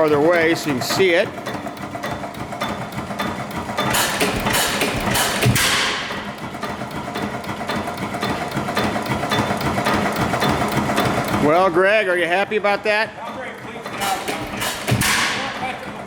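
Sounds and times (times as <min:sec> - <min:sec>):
engine clicking and knocking: 0:00.0 - 0:16.0.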